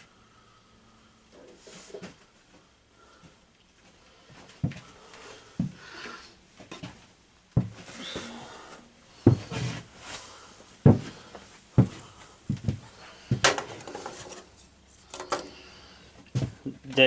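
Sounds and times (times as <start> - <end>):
hardware rattling and rubbing: 13.4 - 15.6.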